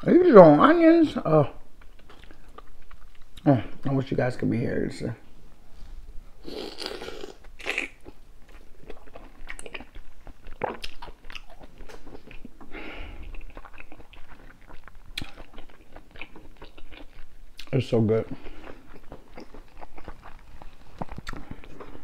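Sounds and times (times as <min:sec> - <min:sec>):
person biting and chewing: 0:06.4 - 0:17.8, 0:18.4 - 0:22.0
lip smacks: 0:18.6 - 0:22.0.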